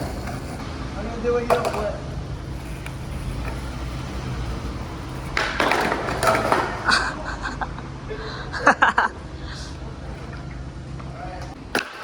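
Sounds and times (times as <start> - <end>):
skateboard popping and clattering: 0.0 - 6.9, 10.0 - 12.0
skateboard wheels rolling on pavement: 0.0 - 7.2, 8.6 - 12.0.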